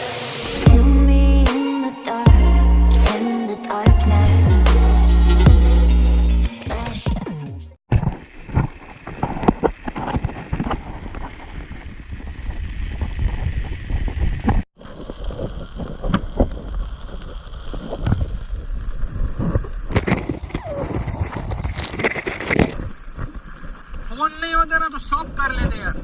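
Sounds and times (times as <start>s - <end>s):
wind buffeting microphone: 9.2s - 16.8s.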